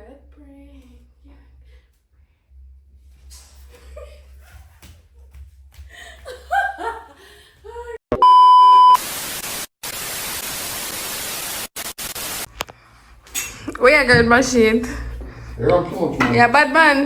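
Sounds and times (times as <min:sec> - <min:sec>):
censor bleep: 0:08.1 - 0:09.0
harsh static hiss: 0:09.0 - 0:13.8
person's voice: 0:13.6 - 0:17.0.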